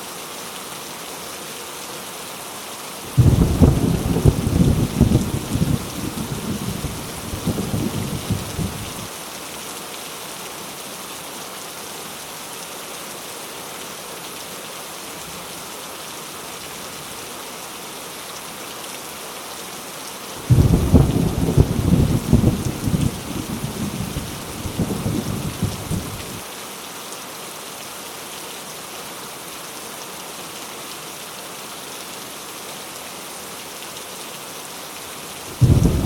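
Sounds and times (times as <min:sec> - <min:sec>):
heavy rain falling: 0:00.3 - 0:36.0
thunder rumbling: 0:03.2 - 0:09.1, 0:20.5 - 0:26.4, 0:35.5 - 0:36.0.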